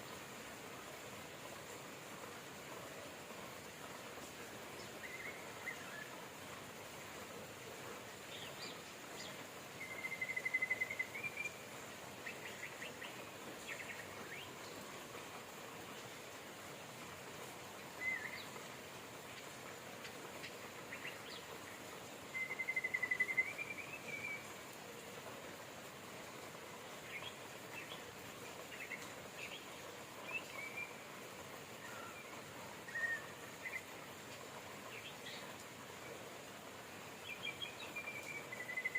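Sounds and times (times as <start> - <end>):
steady rain hiss: 0.0 - 38.9
birds singing: 22.3 - 24.5, 37.2 - 38.9.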